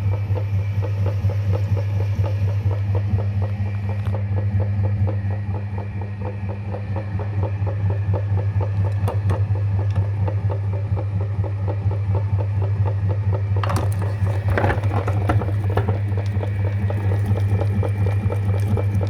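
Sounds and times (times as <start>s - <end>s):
meat grinder running: 13.6s - 19.0s
grinding clatter: 13.7s - 19.0s.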